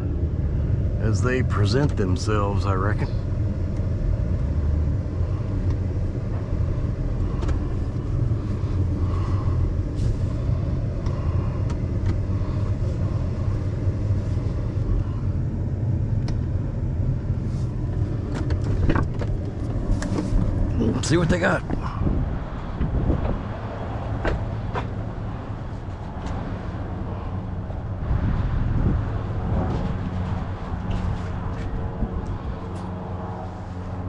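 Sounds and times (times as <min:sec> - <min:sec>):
truck engine rumbling: 0:00.0 - 0:34.0.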